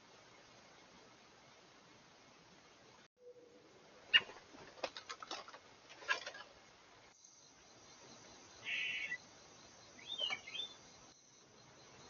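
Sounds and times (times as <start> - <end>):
harsh buzzy bird call: 8.6 - 9.2.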